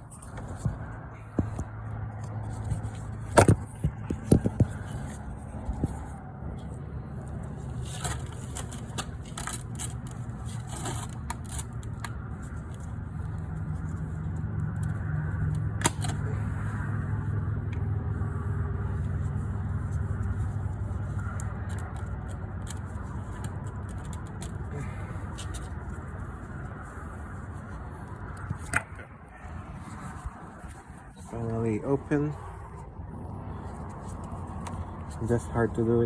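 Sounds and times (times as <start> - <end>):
low rumble of handling noise: 0.0 - 36.0
plastic cap clicking and scraping: 7.8 - 12.9, 21.0 - 24.8.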